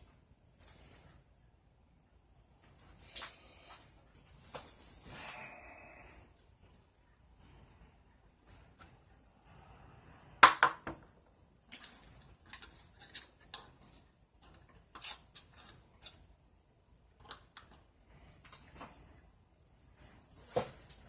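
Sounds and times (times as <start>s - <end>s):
metal parts and tools clinking: 11.6s - 16.3s.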